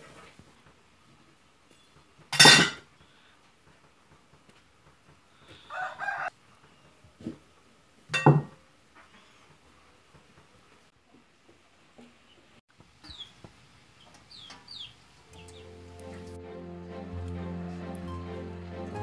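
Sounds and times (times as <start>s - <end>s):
sharp kitchen clatters: 2.3s - 2.8s.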